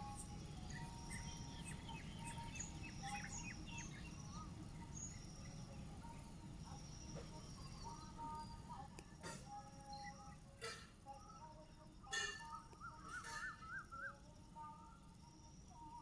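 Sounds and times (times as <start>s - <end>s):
birds chirping: 0.0s - 16.0s
low background noise: 0.0s - 16.0s
bird whistles: 12.1s - 14.2s.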